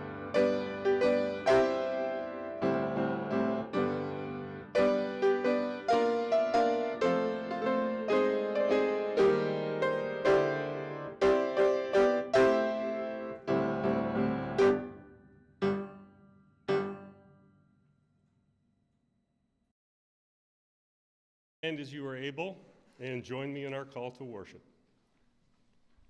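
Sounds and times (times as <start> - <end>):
slow piano piece: 0.0 - 17.6.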